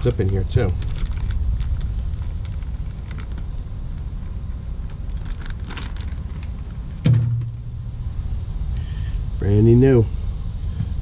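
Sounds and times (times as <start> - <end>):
small parts clicking and rustling: 0.0 - 7.5
low hum: 0.0 - 11.0
low rumble: 0.0 - 11.0.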